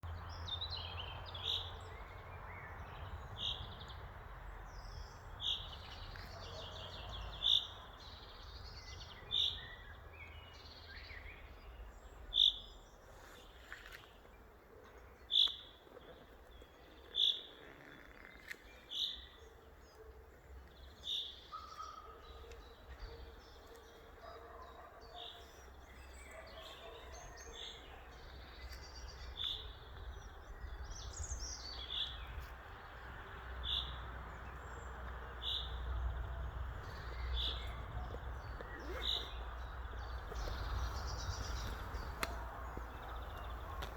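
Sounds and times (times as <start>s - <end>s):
soft bird chirps: 36.9s - 43.9s.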